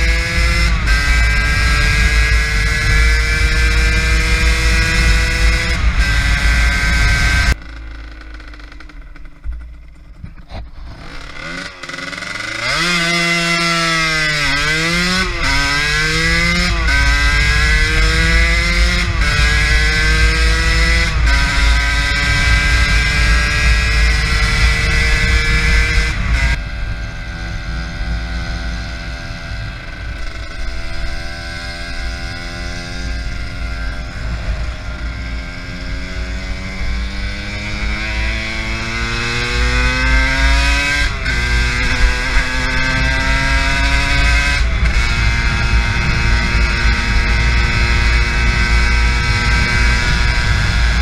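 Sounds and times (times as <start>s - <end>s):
wind rumble on microphone: 0.0s - 7.6s, 14.6s - 51.0s
two-stroke engine pulling: 0.0s - 28.1s.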